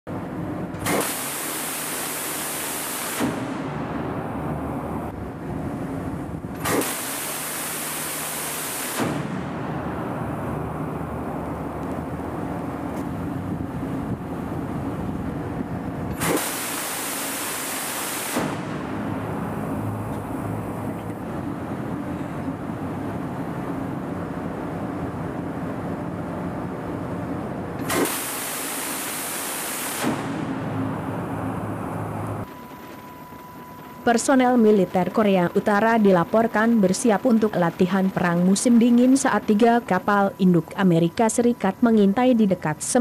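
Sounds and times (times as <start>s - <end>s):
rumbling machinery with low hum: 3.2s - 8.4s, 9.0s - 17.6s, 18.4s - 28.0s, 30.0s - 43.0s.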